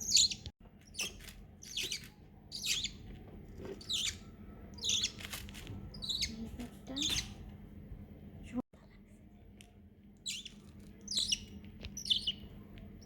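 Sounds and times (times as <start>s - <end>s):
baby parrot squawking: 0.0s - 3.0s, 3.8s - 4.2s, 4.8s - 5.2s, 5.9s - 7.4s, 10.2s - 12.4s.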